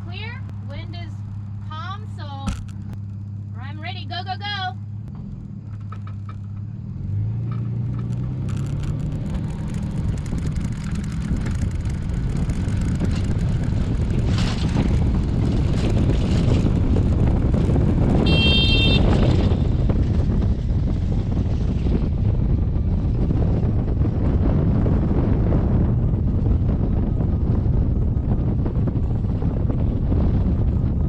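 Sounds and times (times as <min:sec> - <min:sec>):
truck engine speeding up: 0:00.0 - 0:31.0
wind rushing on microphone: 0:06.6 - 0:31.0.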